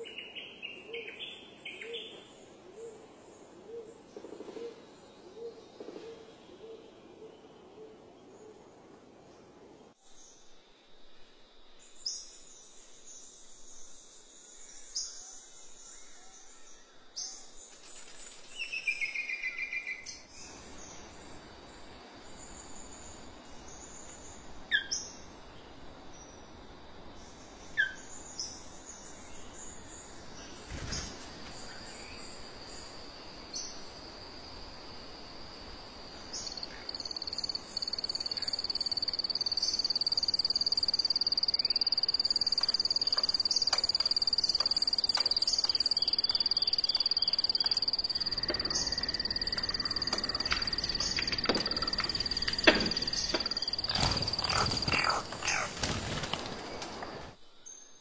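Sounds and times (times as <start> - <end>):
bird chirps: 36.4 - 56.0
birds trilling and whistling: 42.0 - 57.0.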